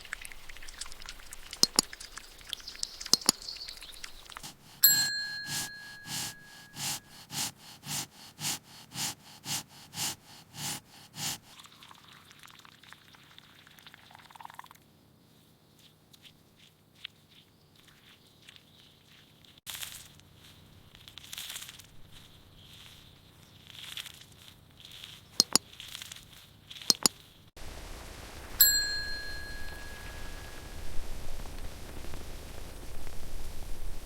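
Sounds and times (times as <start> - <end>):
soft steady hiss: 0.0 - 11.7, 26.4 - 34.0
even strokes: 4.3 - 11.5
bright ding: 4.8 - 7.1, 28.6 - 30.7.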